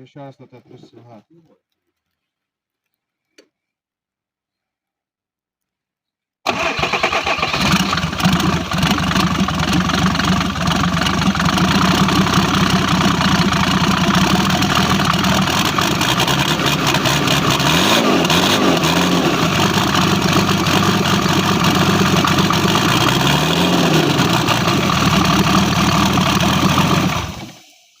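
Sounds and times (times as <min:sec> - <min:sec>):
diesel engine starting and revving: 0:06.5 - 0:27.9.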